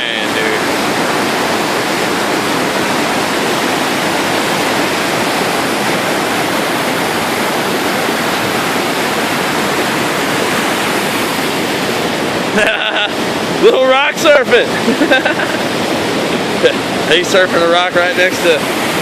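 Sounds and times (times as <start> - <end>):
river rapids rushing over rocks: 0.0 - 19.0.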